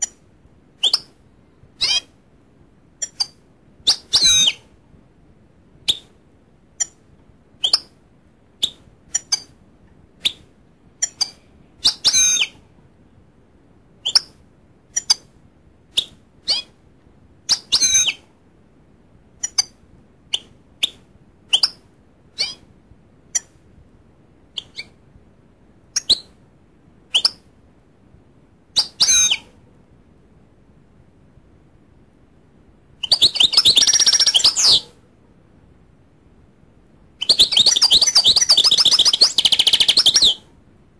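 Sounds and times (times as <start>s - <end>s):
bird twittering: 1.8s - 2.1s, 3.0s - 4.6s, 11.0s - 12.5s, 33.0s - 34.8s, 37.2s - 40.4s
goldfinch high chirps: 1.8s - 2.1s, 3.0s - 4.6s, 11.0s - 12.5s, 28.8s - 29.4s, 33.0s - 34.8s, 37.2s - 40.4s.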